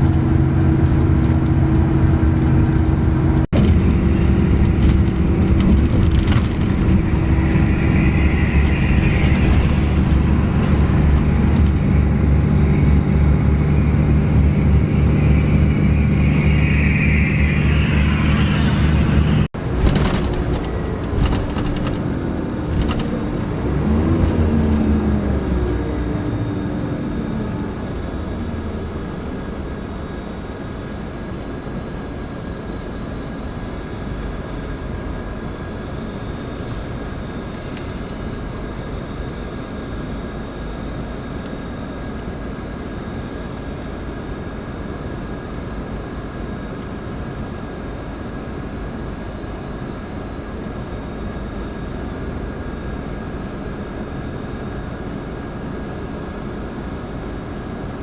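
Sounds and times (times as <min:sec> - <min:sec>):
coach engine and road rumble: 0:00.0 - 0:30.1
faint steady whine: 0:03.6 - 0:30.0.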